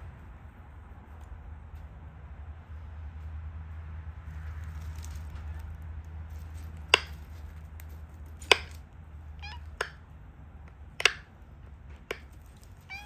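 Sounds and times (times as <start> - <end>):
stone flakes snapping clicks: 8.5 - 8.8, 11.0 - 11.3
cat meowing: 9.4 - 10.0.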